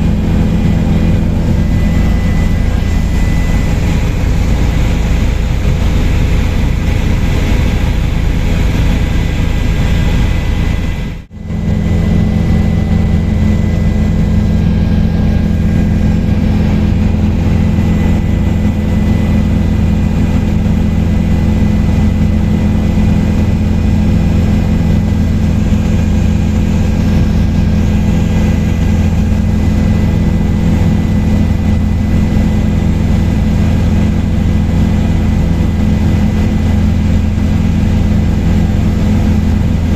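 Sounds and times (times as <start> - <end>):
helicopter engine and rotors: 0.0 - 39.9.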